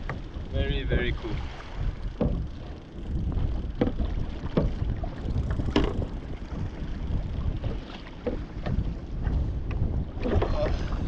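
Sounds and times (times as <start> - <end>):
wind rumbling on microphone: 0.0 - 11.0
fishing gear knocking: 2.1 - 6.3.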